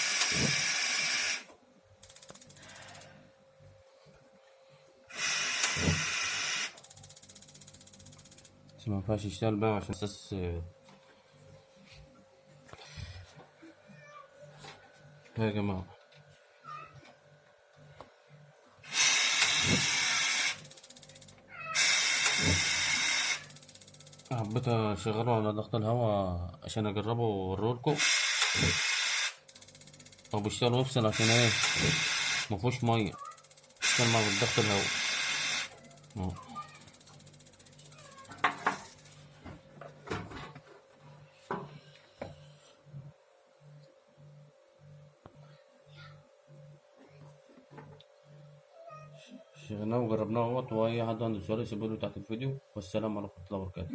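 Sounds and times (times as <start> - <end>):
hissing air bursts: 0.0 - 1.5, 5.1 - 6.8, 18.8 - 20.8, 21.8 - 23.6, 27.9 - 29.5, 31.0 - 32.6, 33.8 - 35.8
spark igniter ticking rapidly: 18.9 - 24.7, 28.0 - 39.2.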